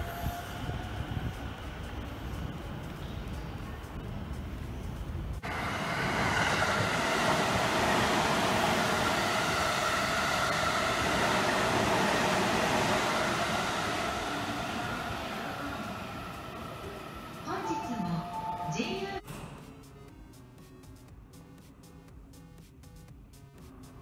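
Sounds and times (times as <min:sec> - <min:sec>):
passenger train passing: 0:00.0 - 0:19.3.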